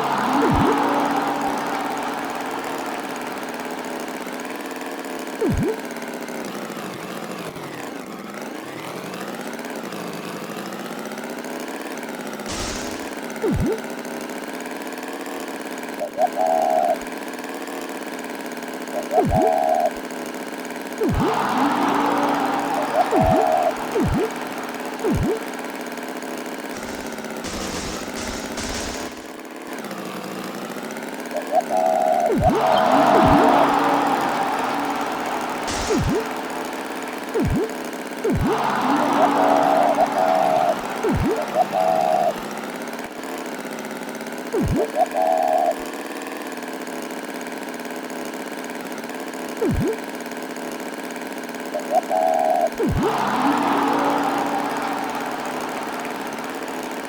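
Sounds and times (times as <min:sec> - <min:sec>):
cartoon tractor engine: 0:00.0 - 0:57.0
loud swooping effects: 0:21.0 - 0:25.7, 0:26.8 - 0:29.4, 0:32.3 - 0:42.5.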